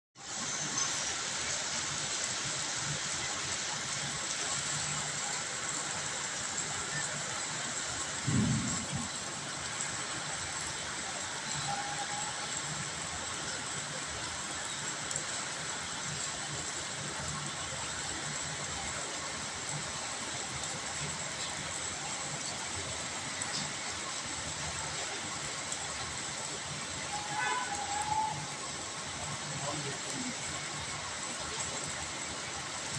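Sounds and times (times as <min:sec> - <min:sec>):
heavy rain falling: 0:00.2 - 0:32.9
low thump: 0:08.2 - 0:09.1.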